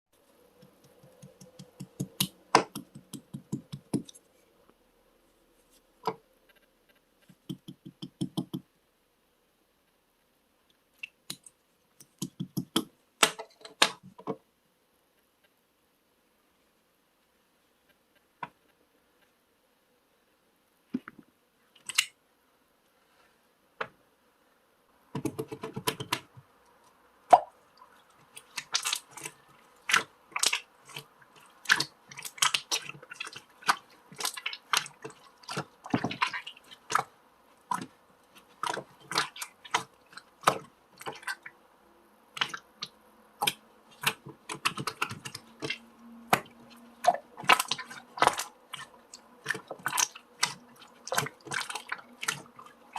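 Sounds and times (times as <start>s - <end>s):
sharp clicks and taps: 0.6s - 4.2s.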